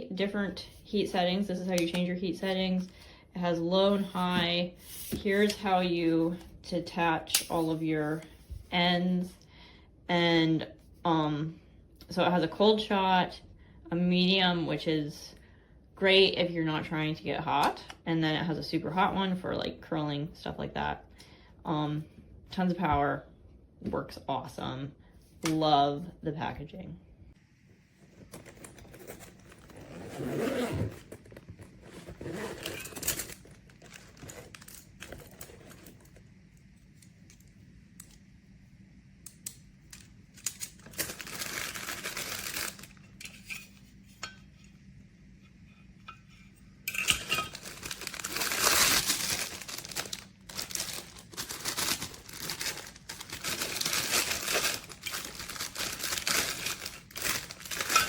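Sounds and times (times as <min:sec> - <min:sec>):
packaging crinkling and rustling: 0:28.0 - 0:36.3, 0:40.0 - 0:43.0, 0:47.0 - 0:58.0.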